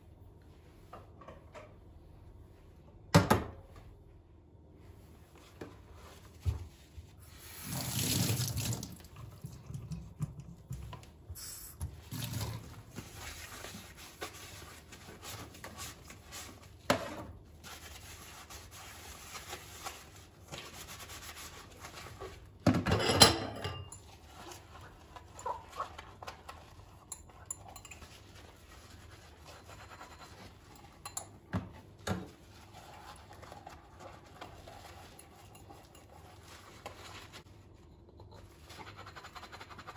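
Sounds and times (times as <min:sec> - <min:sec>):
dishes clattering: 0:22.7 - 0:24.0.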